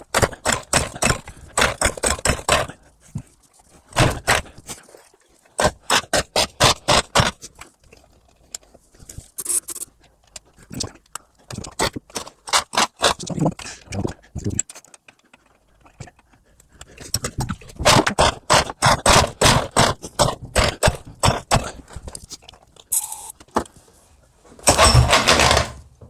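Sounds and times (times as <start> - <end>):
small engine coughing and popping: 0.0 - 4.8, 16.9 - 22.2.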